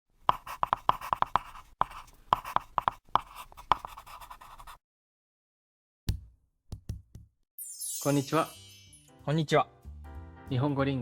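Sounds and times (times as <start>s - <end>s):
handwriting scratching on a surface: 0.3s - 4.8s.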